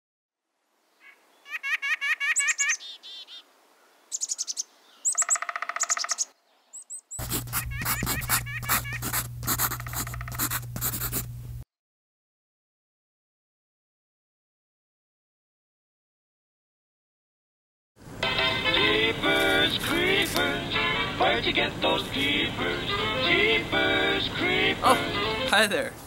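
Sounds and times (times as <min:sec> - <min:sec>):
songbirds calling and singing: 0:00.9 - 0:08.7
steady low hum: 0:07.2 - 0:11.6.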